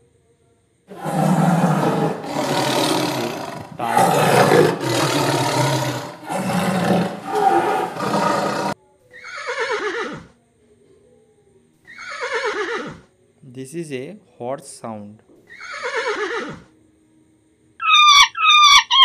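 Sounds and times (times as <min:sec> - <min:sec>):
tiger roaring: 0:00.9 - 0:08.8
horse whinnying: 0:00.9 - 0:10.3, 0:11.9 - 0:13.0, 0:15.5 - 0:16.7.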